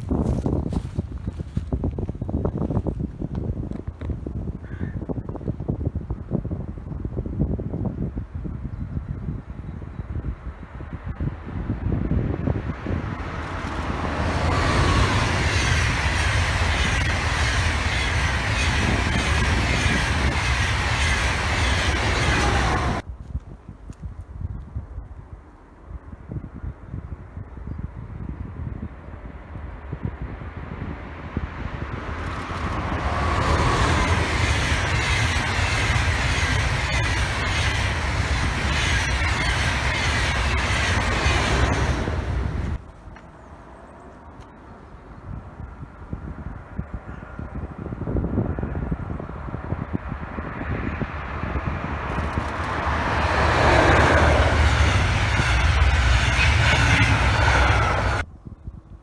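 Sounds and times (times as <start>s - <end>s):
train passing: 0.0s - 23.1s, 27.8s - 45.3s, 48.5s - 58.3s
falling whine: 51.3s - 58.2s.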